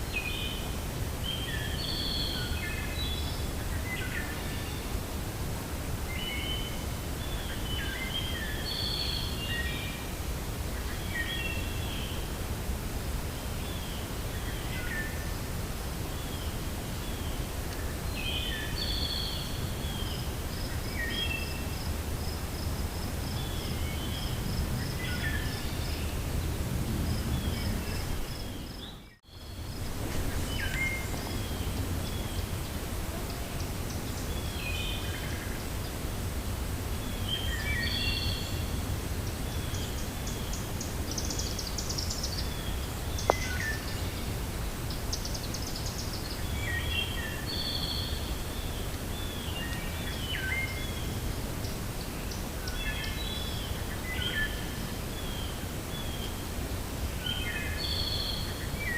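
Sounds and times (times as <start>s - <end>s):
wind blowing through forest: 0.0s - 58.9s
birds chirping: 17.8s - 36.0s.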